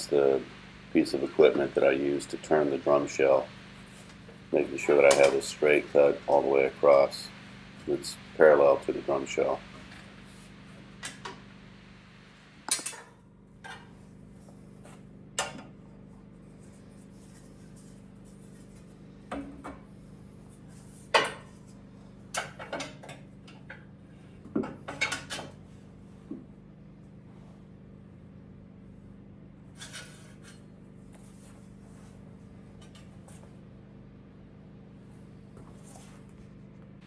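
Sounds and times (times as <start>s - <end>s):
steady low hum: 0.0s - 22.6s.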